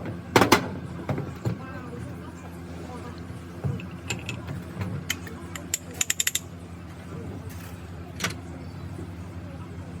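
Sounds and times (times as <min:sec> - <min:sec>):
metallic clicks of tools: 0:05.1 - 0:06.5.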